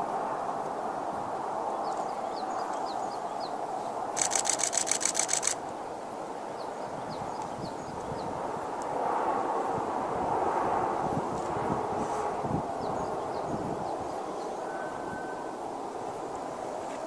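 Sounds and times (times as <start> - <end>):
low rushing noise: 0.0 - 17.0
camera shutter clicks: 4.2 - 5.6.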